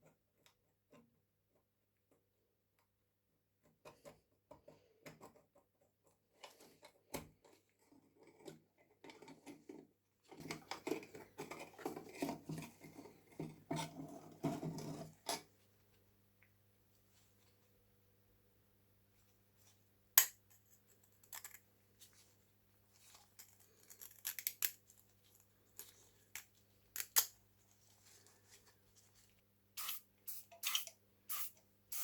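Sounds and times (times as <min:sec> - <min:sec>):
small metal parts clicking: 0:20.2 - 0:21.6, 0:23.4 - 0:27.4.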